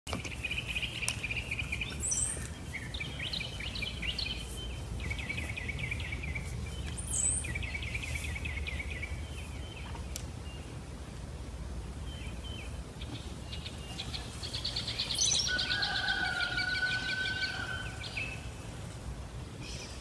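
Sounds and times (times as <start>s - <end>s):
birds chirping: 0.1s - 20.0s
steady low rumble: 0.3s - 20.0s.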